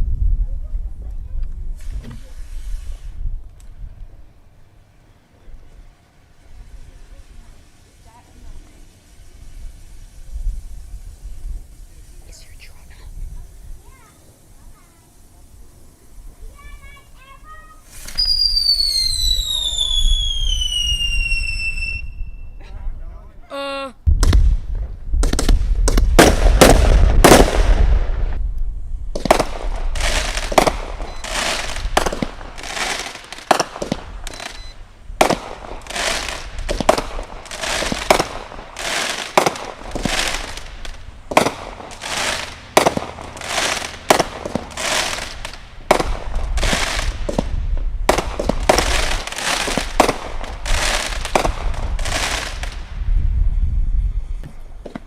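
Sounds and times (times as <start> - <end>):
firework bangs with deep rumble: 24.1 - 53.5.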